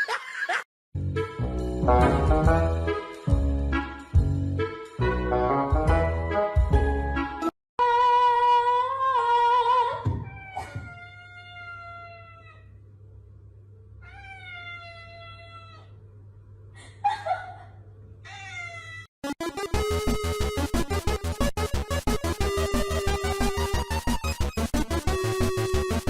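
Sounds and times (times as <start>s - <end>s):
cat meowing: 10.2s - 12.7s, 14.0s - 15.9s.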